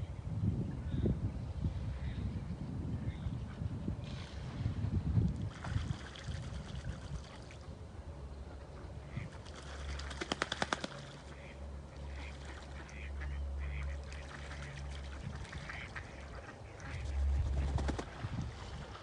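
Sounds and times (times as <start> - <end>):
ducks quacking: 9.0 - 9.4, 11.2 - 17.8
low rumble: 11.0 - 19.0.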